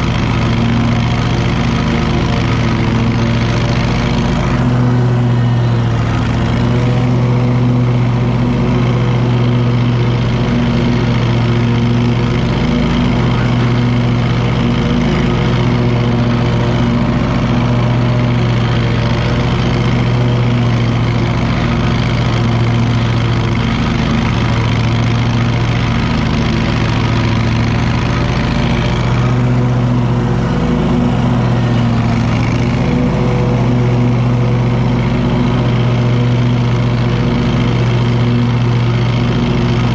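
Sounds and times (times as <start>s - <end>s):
mower engine running steadily: 0.0s - 39.9s.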